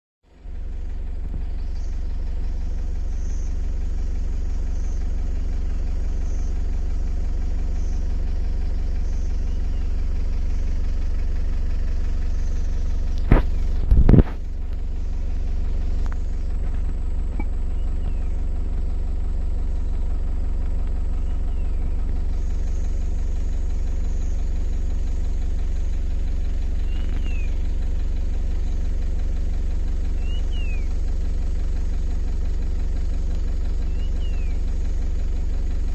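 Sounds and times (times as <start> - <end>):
low motor drone: 0.3 - 35.9
faint high chirps: 26.8 - 27.6.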